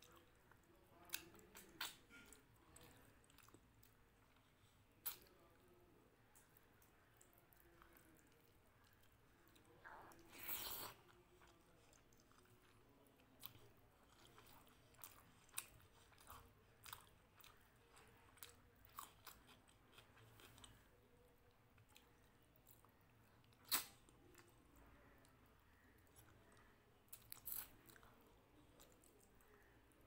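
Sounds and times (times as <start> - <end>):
crunchy chewing: 0.0 - 5.5, 6.4 - 20.9, 25.7 - 29.7.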